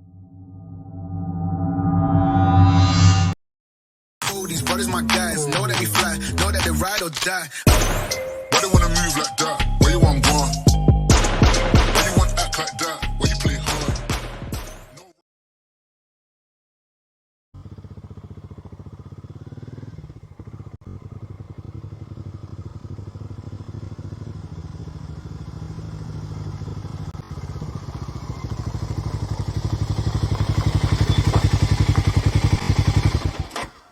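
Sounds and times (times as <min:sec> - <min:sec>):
motorcycle engine running: 0:17.6 - 0:33.9.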